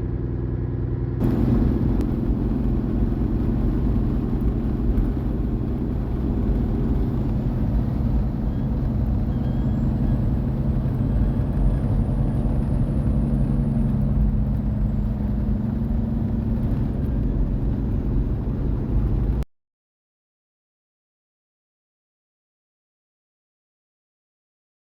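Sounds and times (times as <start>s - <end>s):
diesel truck engine running: 0.0s - 19.4s
faint high turbo whistle: 7.2s - 13.2s.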